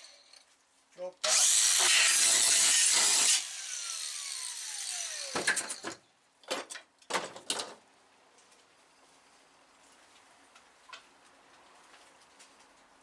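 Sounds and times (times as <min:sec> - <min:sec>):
angle grinder spinning down: 0:01.2 - 0:05.8.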